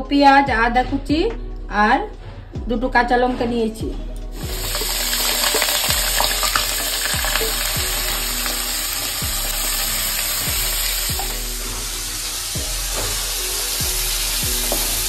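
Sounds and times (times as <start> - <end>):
vegetables sizzling in hot oil: 4.4 - 15.0.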